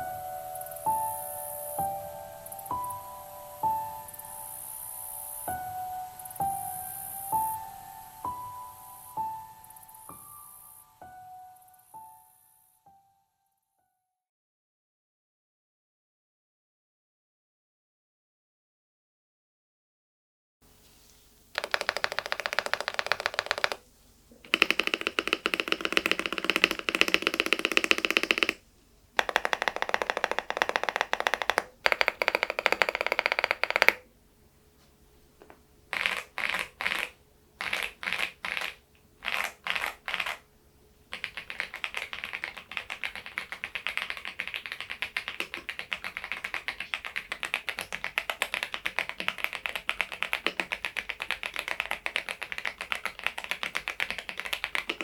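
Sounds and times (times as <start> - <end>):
mechanical keyboard typing: 21.6 - 23.8, 24.4 - 28.6, 29.2 - 34.1, 35.9 - 40.4, 41.1 - 55.0.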